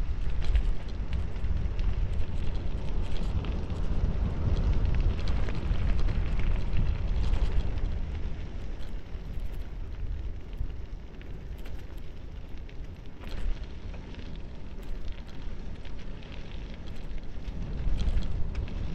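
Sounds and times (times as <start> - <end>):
tyres crackling over gravel: 0.0 - 18.9
wind buffeting microphone: 0.0 - 18.9.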